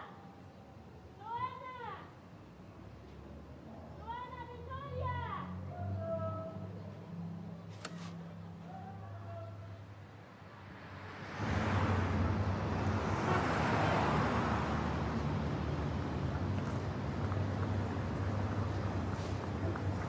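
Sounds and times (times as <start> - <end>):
motor vehicle passing: 10.7 - 20.0.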